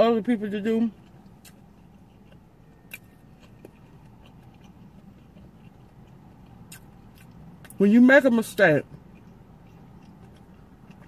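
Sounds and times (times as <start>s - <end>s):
faint chewing: 0.0s - 11.0s
mouth clicks and smacks: 1.0s - 7.8s.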